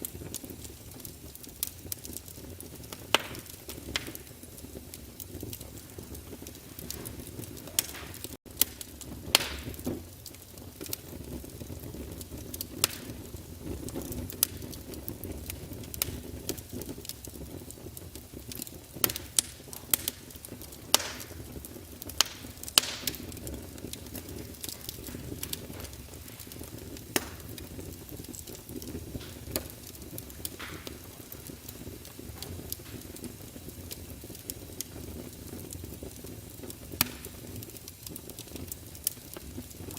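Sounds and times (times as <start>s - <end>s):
fire crackling and popping: 0.0s - 39.9s
fire flames rumbling: 0.0s - 39.9s.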